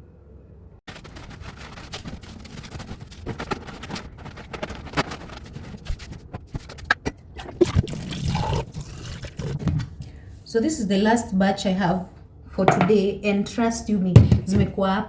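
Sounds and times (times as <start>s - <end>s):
packaging rustling: 0.9s - 8.2s
containers knocking and clicking: 12.7s - 13.0s, 14.2s - 14.8s.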